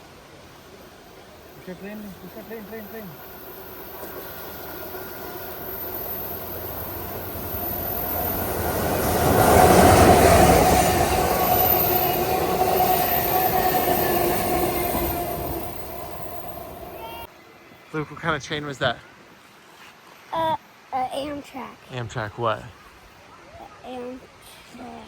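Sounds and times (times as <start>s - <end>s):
train passing rumble: 0.0s - 17.3s
wheels ringing on rails: 0.9s - 17.3s.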